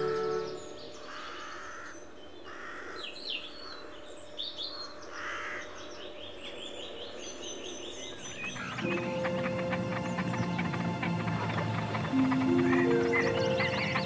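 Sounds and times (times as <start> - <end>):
harsh bird calls: 8.0 - 14.0.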